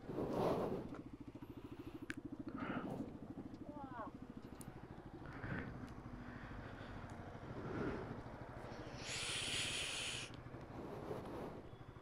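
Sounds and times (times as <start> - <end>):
motorcycle engine running: 0.7 - 12.0
burst of hiss: 9.0 - 10.3.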